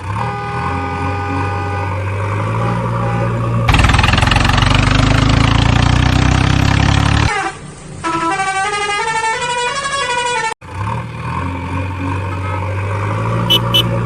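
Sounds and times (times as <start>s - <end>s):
short high blips: 13.5s - 13.9s.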